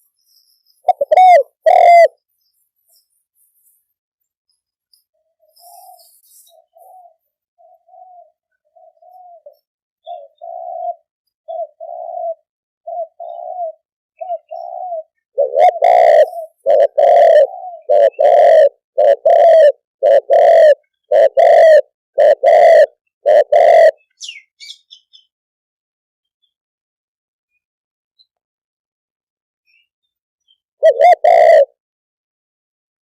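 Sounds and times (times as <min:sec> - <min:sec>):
dove cooing: 0:00.8 - 0:02.2, 0:05.4 - 0:24.4, 0:30.8 - 0:31.8.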